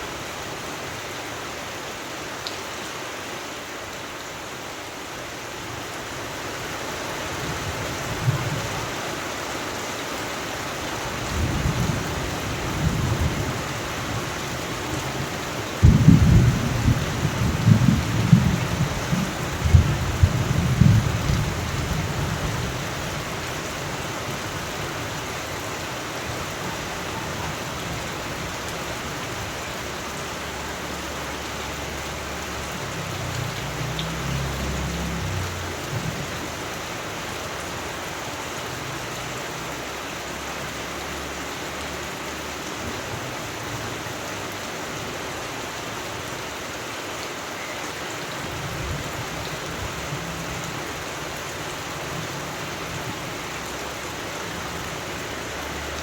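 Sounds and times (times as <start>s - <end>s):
steady rain: 0.0s - 56.0s
rolling thunder: 15.8s - 22.7s.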